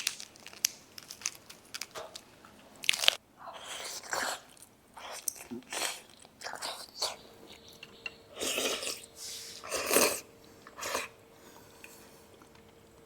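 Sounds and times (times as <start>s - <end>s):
faint steady hum: 0.0s - 13.0s
eating noodles: 2.9s - 7.2s, 8.3s - 12.6s.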